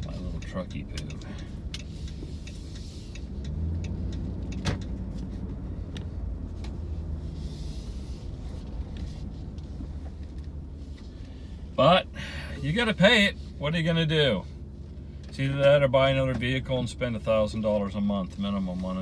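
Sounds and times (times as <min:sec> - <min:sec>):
light ticks: 0:00.0 - 0:06.8
engine and road rumble: 0:00.0 - 0:19.0.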